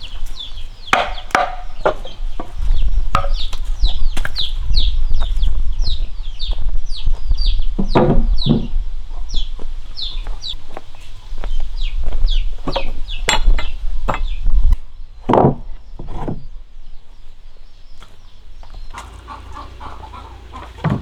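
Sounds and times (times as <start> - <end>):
chickens clucking: 0.0 - 14.4, 18.0 - 21.0
chicks peeping: 0.0 - 14.8, 16.9 - 21.0
sharp knocks: 0.9 - 3.6, 19.0 - 21.0.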